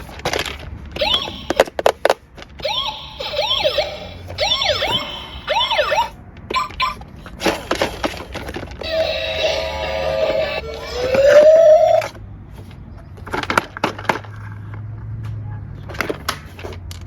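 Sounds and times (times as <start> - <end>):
electronic police siren: 1.0 - 1.6, 2.6 - 7.0, 8.8 - 12.2.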